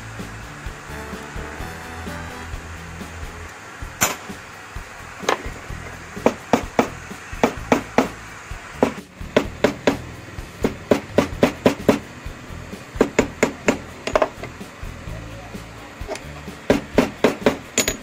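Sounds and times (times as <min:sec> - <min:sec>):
hammer striking steel wire: 0:04.0 - 0:04.4, 0:13.0 - 0:14.5, 0:16.7 - 0:18.0.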